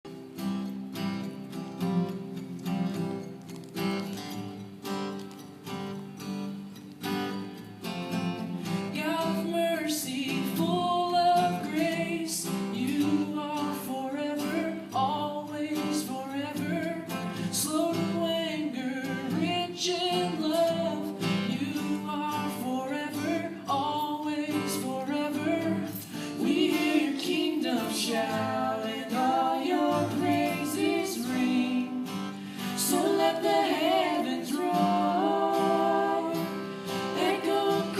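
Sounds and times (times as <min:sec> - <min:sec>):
strummed acoustic guitar: 0:00.1 - 0:37.9
person and child singing: 0:24.2 - 0:32.1, 0:32.8 - 0:36.6, 0:37.2 - 0:37.9.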